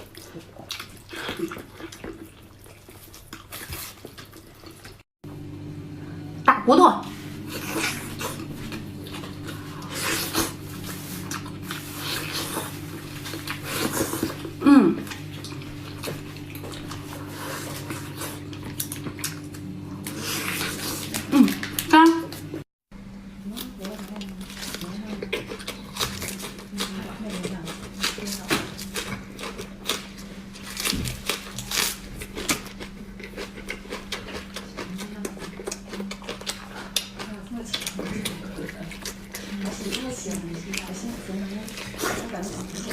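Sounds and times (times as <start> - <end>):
wet chewing of meat: 0.0 - 5.1, 7.3 - 22.6, 23.8 - 42.9
steady low hum: 5.2 - 42.9
wet chewing clicks and smacks: 31.3 - 40.9.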